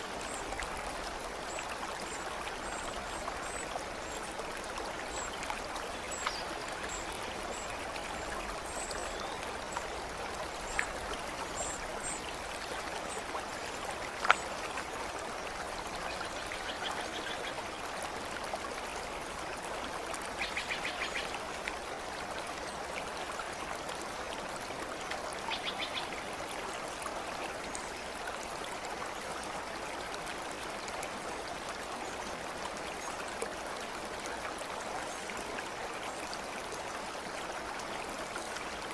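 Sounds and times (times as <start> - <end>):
stream flowing: 0.0 - 38.9
sharp drip-like ticks: 5.0 - 14.9.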